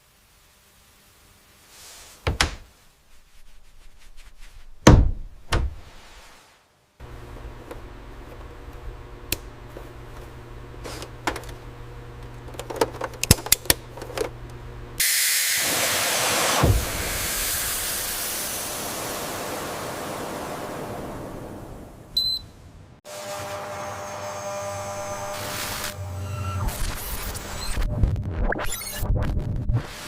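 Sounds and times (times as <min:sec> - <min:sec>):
mechanical thunks and knocks: 0:02.2 - 0:02.7, 0:04.8 - 0:05.9
low machine hum: 0:07.0 - 0:15.0.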